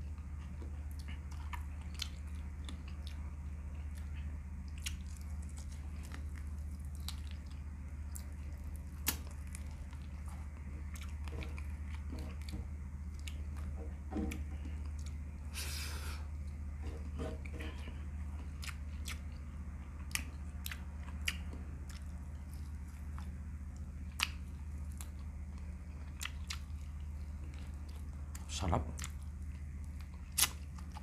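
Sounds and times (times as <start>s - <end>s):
person chewing food: 0.0s - 31.0s
steady low hum: 0.0s - 31.0s.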